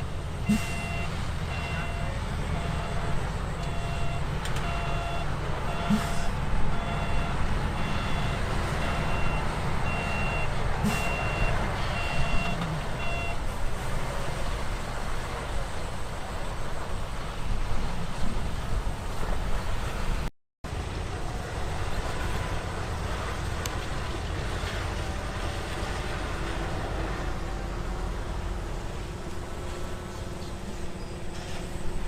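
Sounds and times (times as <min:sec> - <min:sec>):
diesel machine running: 0:00.0 - 0:32.0
reversing alarm beeping: 0:00.4 - 0:13.4.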